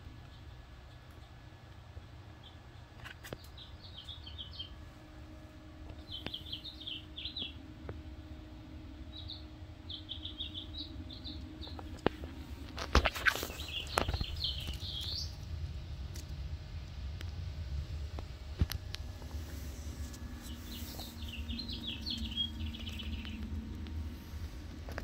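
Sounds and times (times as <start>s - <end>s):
faint low rumble: 0.0s - 25.0s
songbird chirping: 2.1s - 4.8s, 5.9s - 15.4s, 19.5s - 24.6s.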